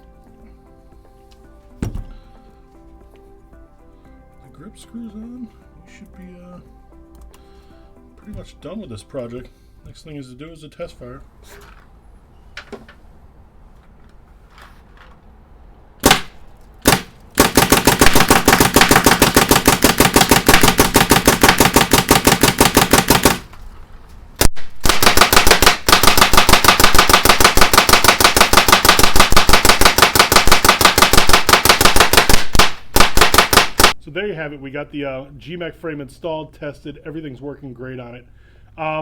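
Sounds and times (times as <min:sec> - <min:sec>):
paintball marker firing: 0:16.0 - 0:23.6, 0:24.4 - 0:34.0.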